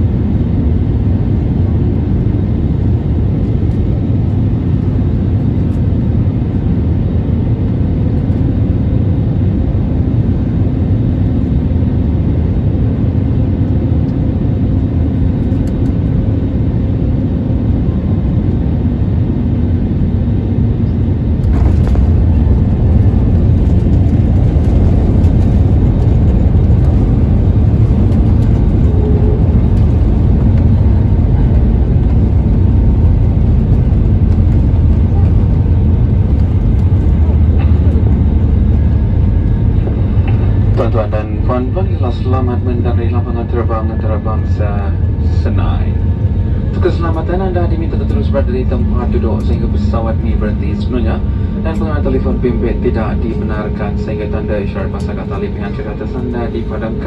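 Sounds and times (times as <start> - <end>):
airplane cabin engine rumble: 0.0 - 57.0
airplane touchdown jolt: 21.4 - 31.3.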